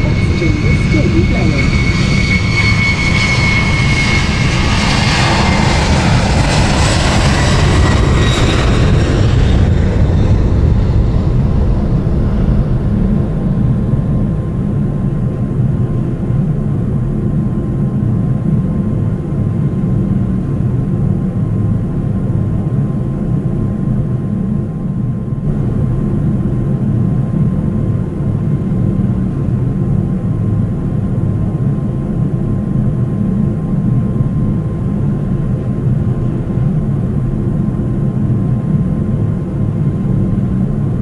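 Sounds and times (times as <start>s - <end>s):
high engine whine: 0.0s - 41.0s
jet engine low rumble: 0.0s - 41.0s.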